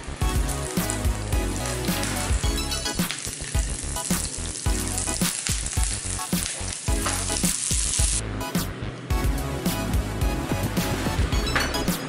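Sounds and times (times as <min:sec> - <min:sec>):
shallots sizzling in hot oil: 0:00.0 - 0:08.2
background music: 0:00.0 - 0:12.0.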